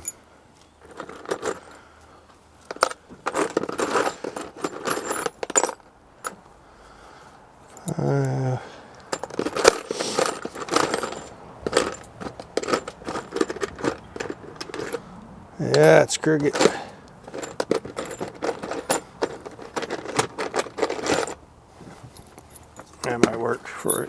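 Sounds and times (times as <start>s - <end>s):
metal tools clinking: 0.0s - 1.8s, 2.6s - 6.5s, 7.7s - 8.4s, 9.0s - 24.0s
person grunting: 7.8s - 8.8s.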